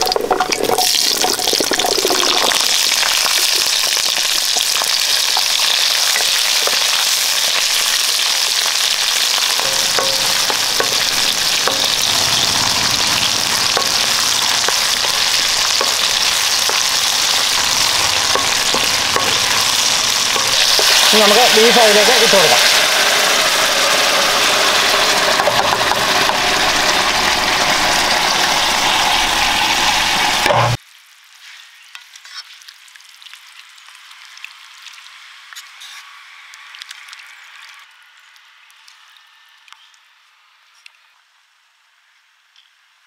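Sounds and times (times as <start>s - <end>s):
food sizzling in hot oil: 0.0s - 39.3s
wooden spatula knocking pan: 9.5s - 12.2s, 13.6s - 21.4s.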